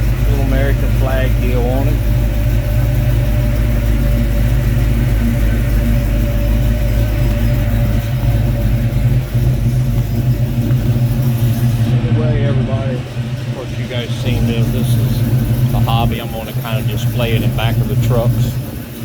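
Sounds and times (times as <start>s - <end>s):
pickup engine idling: 0.0s - 19.0s.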